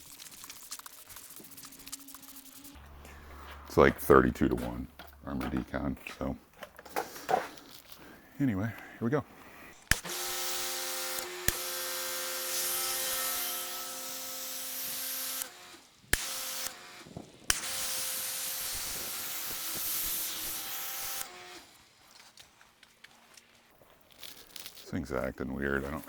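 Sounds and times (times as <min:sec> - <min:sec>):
spray hissing: 0:00.0 - 0:04.5, 0:17.6 - 0:21.2
pressure washer motor whine: 0:01.4 - 0:05.7, 0:09.9 - 0:15.6.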